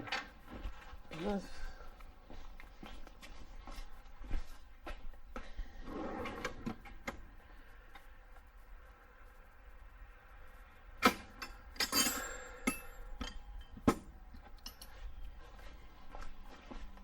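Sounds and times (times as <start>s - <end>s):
wrench clinking against metal: 11.3s - 14.0s, 14.6s - 15.0s
metal hardware jingling: 11.4s - 13.8s, 14.6s - 15.0s.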